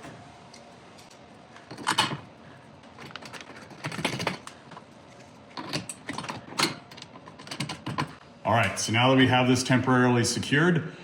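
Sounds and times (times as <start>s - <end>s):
metal hardware clicking and rattling: 1.0s - 8.2s.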